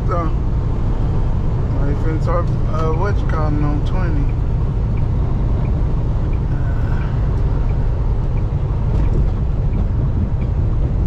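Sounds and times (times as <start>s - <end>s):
truck engine and road rumble: 0.0s - 11.0s
turn signal ticking: 2.2s - 11.0s.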